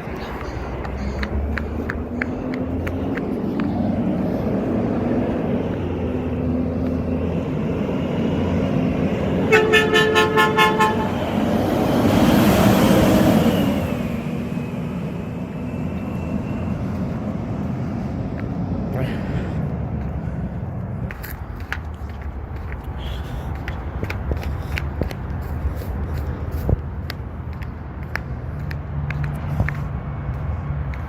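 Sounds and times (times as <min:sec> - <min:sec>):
diesel engine running: 0:00.0 - 0:31.0
truck horn short honks: 0:09.4 - 0:11.2.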